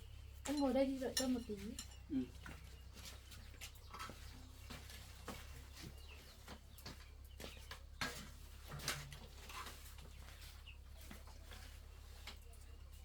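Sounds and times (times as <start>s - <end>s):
birds calling faintly: 0.0s - 13.0s.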